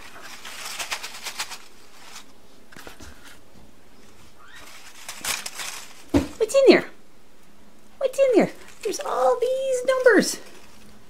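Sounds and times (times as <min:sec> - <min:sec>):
paper slips rustling in a container: 0:00.0 - 0:02.3, 0:04.4 - 0:06.6, 0:08.4 - 0:11.0.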